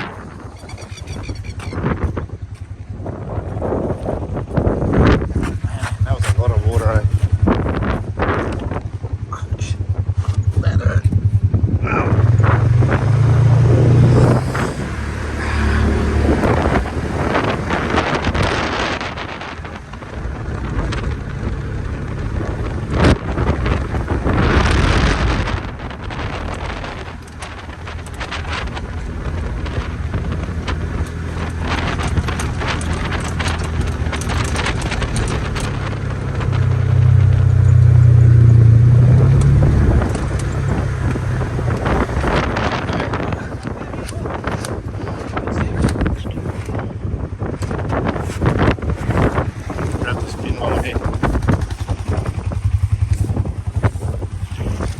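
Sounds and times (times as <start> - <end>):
vehicle engine low rumble: 0.0 - 54.9
sharp clatters: 22.9 - 46.8, 47.6 - 54.9.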